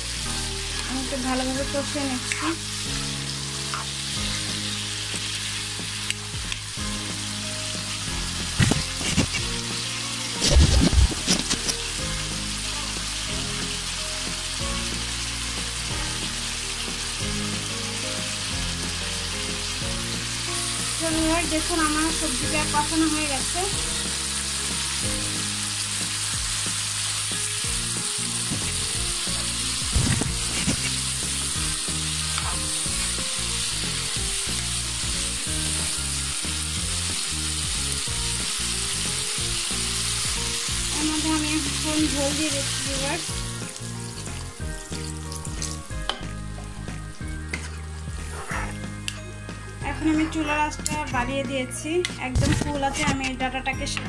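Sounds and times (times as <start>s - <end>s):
vegetables sizzling in oil: 0.0s - 51.4s.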